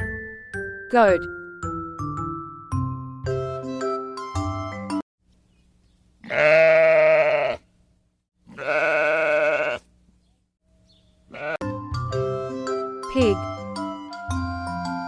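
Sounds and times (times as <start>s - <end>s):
goat bleating: 6.2s - 7.7s, 8.4s - 9.9s, 11.3s - 11.7s.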